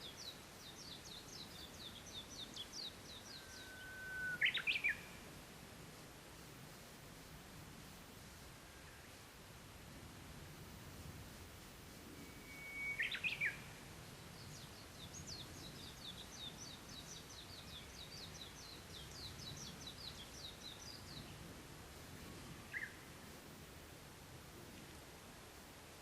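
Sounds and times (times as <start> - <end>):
songbirds singing: 0.0 - 5.2, 12.4 - 21.5, 22.2 - 23.0
loud whistled bird phrase: 12.2 - 13.5.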